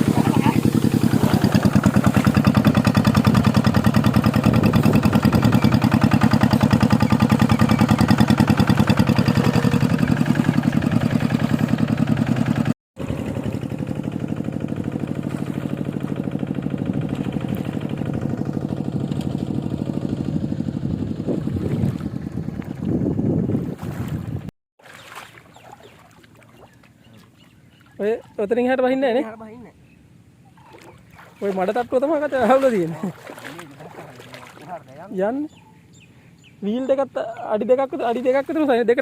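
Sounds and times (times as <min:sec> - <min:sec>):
tractor engine running: 0:00.0 - 0:21.4.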